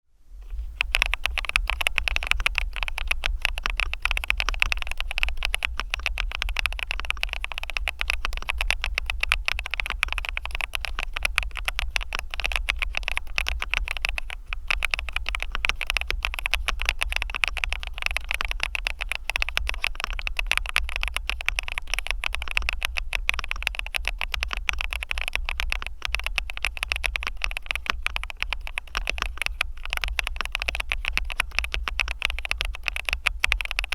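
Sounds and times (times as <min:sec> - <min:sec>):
steady low hum: 0:00.2 - 0:20.9
mechanical keyboard typing: 0:00.4 - 0:33.9.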